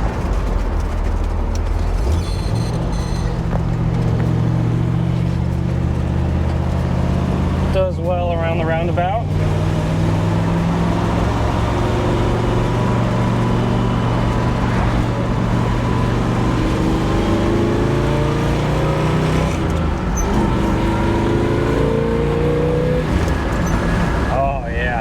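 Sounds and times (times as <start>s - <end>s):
car engine revving while driving: 0.0s - 25.0s.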